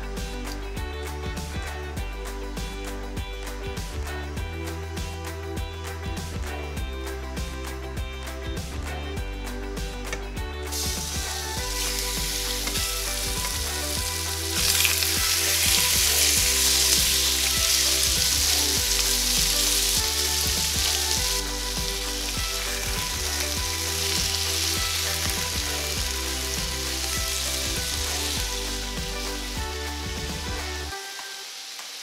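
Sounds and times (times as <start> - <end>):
chicken sizzling in hot oil: 10.7 - 32.0.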